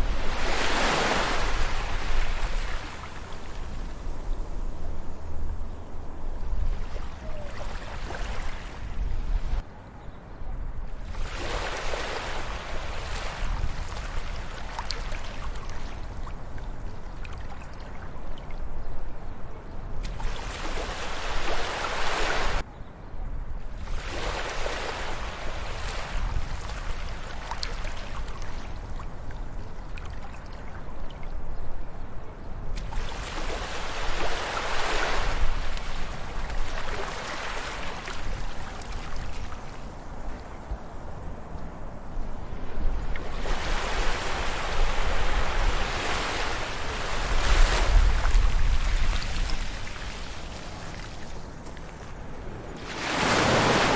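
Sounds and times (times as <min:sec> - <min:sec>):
sea waves breaking on beach: 0:00.0 - 0:04.1, 0:11.0 - 0:16.4, 0:20.0 - 0:22.6, 0:23.9 - 0:29.0, 0:32.8 - 0:40.3, 0:42.5 - 0:53.9.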